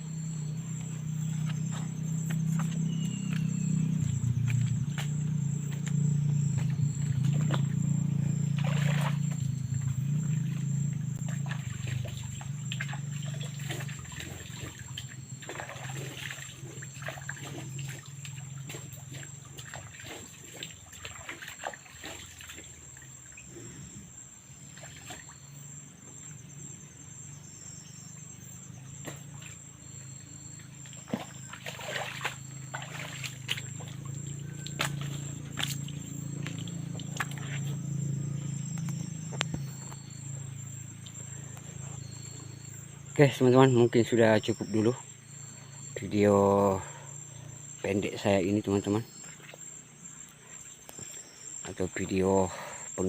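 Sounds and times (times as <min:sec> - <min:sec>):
high-pitched whine: 0:00.0 - 0:17.4, 0:26.2 - 0:46.8
low hum: 0:00.0 - 0:19.5.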